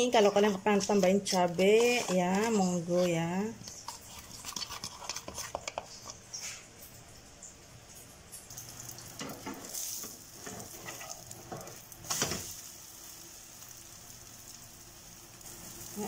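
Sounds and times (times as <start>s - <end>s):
spatula scraping and tapping pan: 0.0s - 6.6s, 9.2s - 11.8s
omelette sizzling in a pan: 8.1s - 16.0s.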